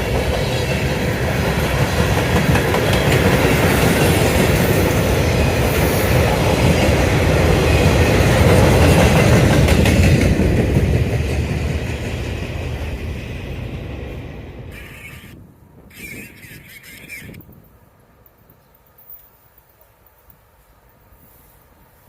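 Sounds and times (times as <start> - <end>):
train wheels clattering on rails: 0.0 - 14.1.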